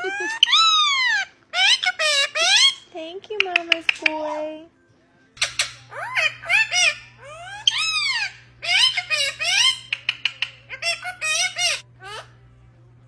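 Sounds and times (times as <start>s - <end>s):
parrot squawking and whistling: 0.0s - 2.9s, 5.4s - 12.4s.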